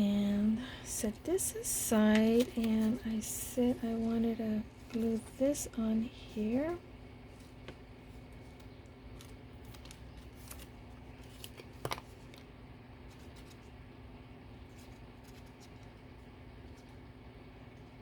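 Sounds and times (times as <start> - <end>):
paper and tools rustling and clicking: 2.0 - 3.3, 7.4 - 12.5.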